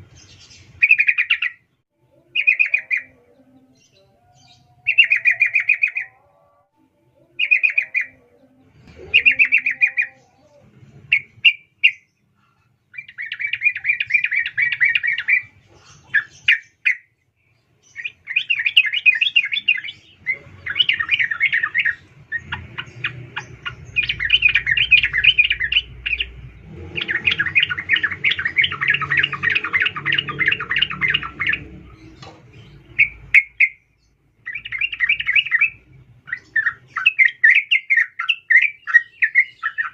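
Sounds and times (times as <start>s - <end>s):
low rumble: 22.0s - 33.3s.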